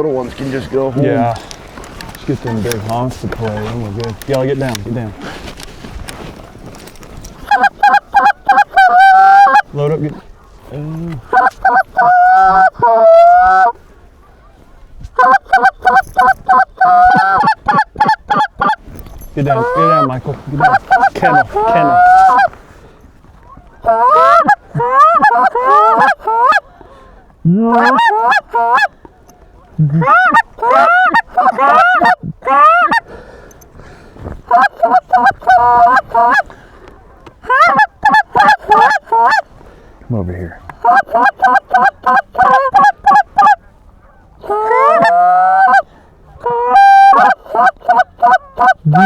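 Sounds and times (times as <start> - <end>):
short goose clucks: 0.0 - 5.0, 7.3 - 18.8, 19.4 - 22.6, 23.4 - 33.1, 34.4 - 39.5, 40.1 - 49.0
goose call honks: 7.4 - 10.2, 11.0 - 13.8, 15.2 - 18.8, 19.4 - 22.6, 23.5 - 26.6, 27.4 - 29.0, 29.7 - 33.0, 34.4 - 36.5, 37.4 - 39.5, 40.3 - 49.0.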